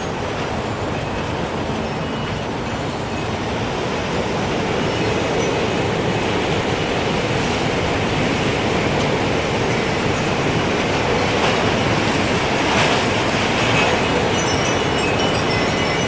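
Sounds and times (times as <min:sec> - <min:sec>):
strong rushing wind: 0:00.0 - 0:16.0
wind chime tinkling: 0:00.9 - 0:06.9, 0:13.6 - 0:16.0.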